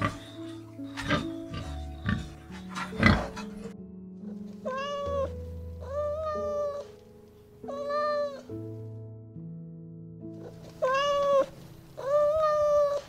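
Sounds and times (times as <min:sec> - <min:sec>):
background music: 0:00.0 - 0:13.0
cat meowing: 0:04.6 - 0:07.0, 0:07.6 - 0:08.6, 0:10.4 - 0:13.0.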